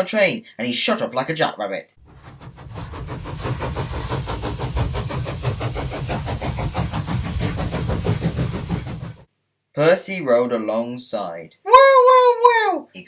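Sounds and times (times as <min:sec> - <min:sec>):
steam locomotive chuffing: 0:02.0 - 0:09.3.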